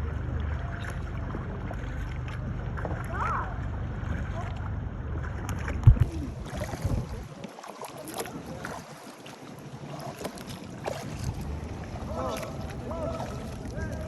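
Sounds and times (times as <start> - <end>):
paddle splashes: 0.0 - 14.0
wind buffeting microphone: 5.4 - 14.0.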